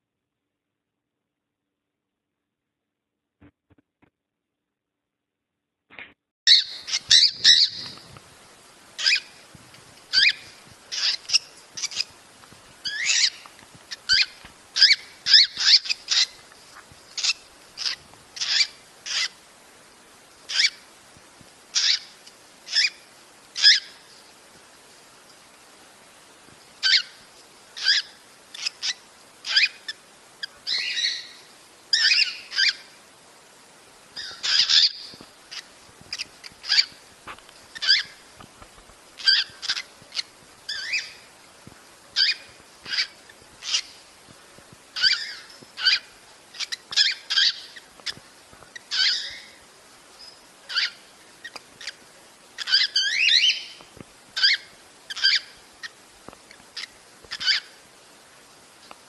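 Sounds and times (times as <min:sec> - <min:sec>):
cockatiel chirping and warbling: 0:06.5 - 0:08.0, 0:10.1 - 0:12.1, 0:14.1 - 0:16.3, 0:17.2 - 0:19.3, 0:37.8 - 0:38.2, 0:39.2 - 0:41.2, 0:42.2 - 0:44.0, 0:45.0 - 0:48.2, 0:48.9 - 0:49.6, 0:50.7 - 0:52.0, 0:52.6 - 0:53.8, 0:54.4 - 0:55.9, 0:56.8 - 0:57.7.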